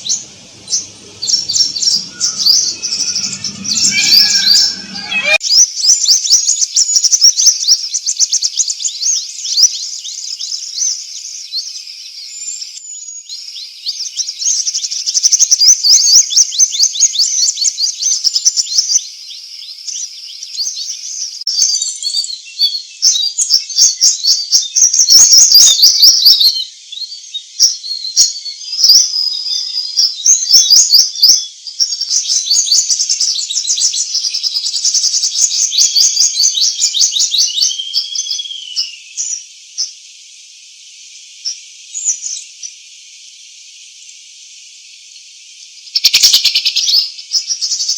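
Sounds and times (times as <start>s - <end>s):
songbirds chirping and trilling: 0.0s - 5.4s, 33.7s - 39.4s
steady high hiss: 0.0s - 5.4s.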